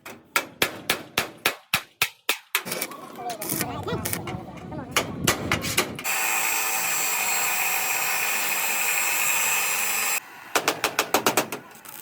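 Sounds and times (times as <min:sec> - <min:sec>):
power tool whining: 0:06.0 - 0:12.0.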